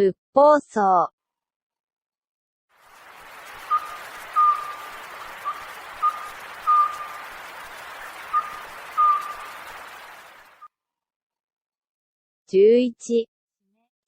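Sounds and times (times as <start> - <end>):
steady background hiss: 2.8 - 10.7
owl whistled call: 3.1 - 10.7.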